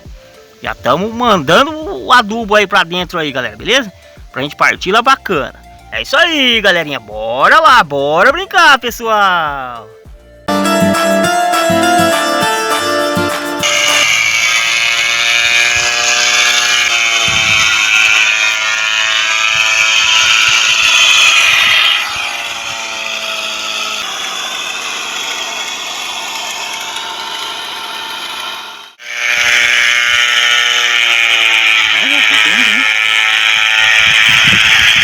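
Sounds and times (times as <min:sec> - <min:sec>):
small electric motor whirring: 0:11.8 - 0:35.0.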